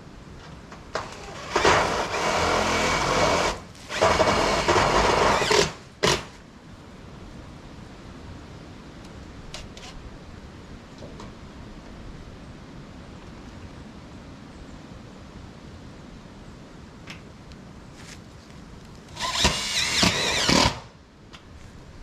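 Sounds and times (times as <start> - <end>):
power tool motor bursts: 1.0 - 6.3, 19.1 - 20.9.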